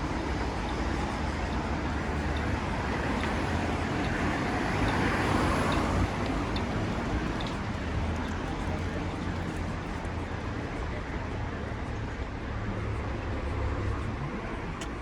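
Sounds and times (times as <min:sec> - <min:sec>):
traffic on wet road: 0:00.0 - 0:15.0.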